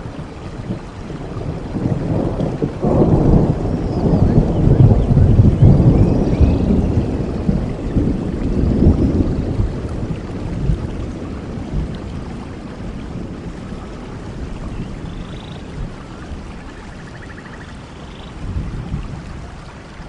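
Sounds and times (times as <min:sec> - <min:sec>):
thunder rumble: 0:00.0 - 0:19.5
steady rain falling: 0:00.0 - 0:20.0.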